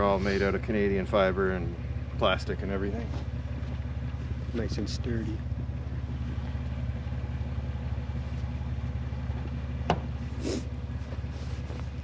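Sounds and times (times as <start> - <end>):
vehicle engine idling: 0.0 - 12.0
short hiss: 10.4 - 10.7.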